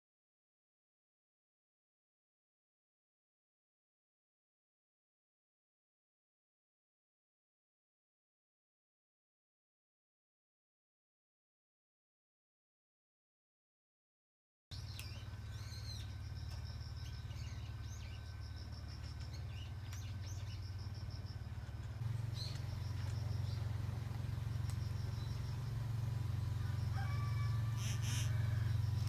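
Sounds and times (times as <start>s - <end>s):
bird chirps: 14.7s - 29.0s
steady low hum: 14.7s - 29.0s
insect pulsing high trill: 22.0s - 29.0s.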